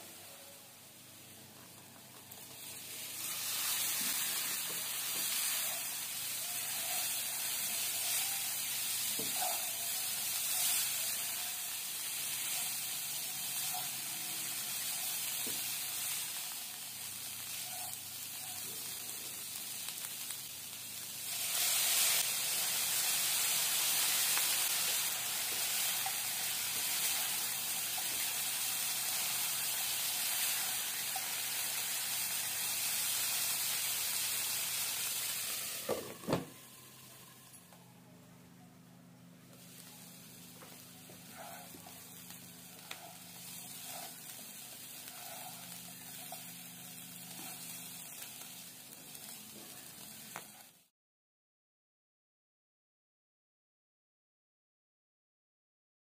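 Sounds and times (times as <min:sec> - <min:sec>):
fish sizzling in hot oil: 0:02.3 - 0:37.3, 0:39.6 - 0:50.9
spatula stirring in pan: 0:21.3 - 0:32.8, 0:41.0 - 0:48.7.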